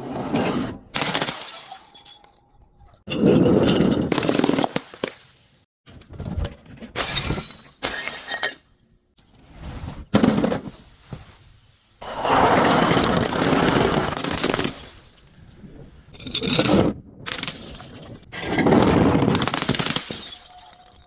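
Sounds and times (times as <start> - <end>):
glass breaking and crunching: 1.0 - 2.5, 7.0 - 8.8, 13.2 - 15.4, 17.3 - 18.3, 19.4 - 21.0.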